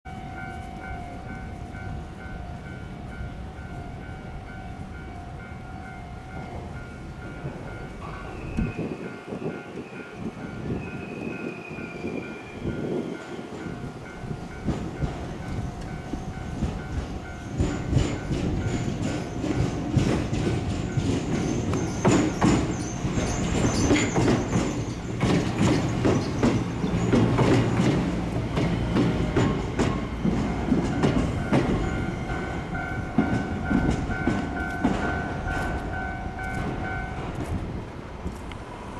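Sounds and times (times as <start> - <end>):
level-crossing warning bell dinging: 0.1 - 37.6
high wheel squeal: 8.0 - 13.6, 20.6 - 27.8
train wheels clattering over rail joints: 12.8 - 38.6.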